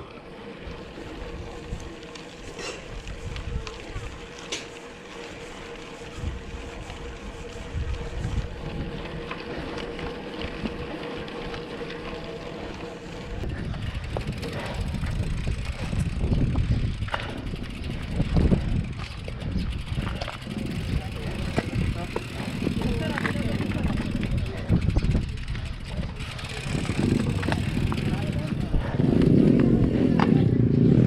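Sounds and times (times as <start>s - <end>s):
road traffic: 0.0s - 31.0s
wind rushing over microphone: 2.8s - 4.3s, 6.0s - 10.9s, 12.7s - 31.0s.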